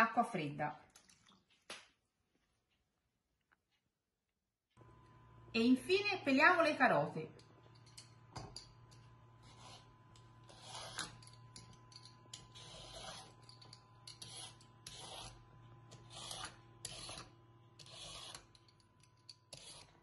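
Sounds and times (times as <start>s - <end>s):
peeler scraping carrot: 9.4s - 11.4s, 12.3s - 20.0s.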